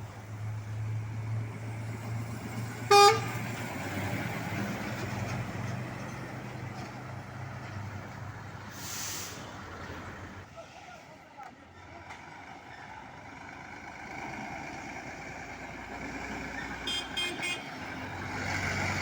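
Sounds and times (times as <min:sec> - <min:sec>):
loud truck horn blast: 0:02.9 - 0:03.4, 0:16.8 - 0:17.9.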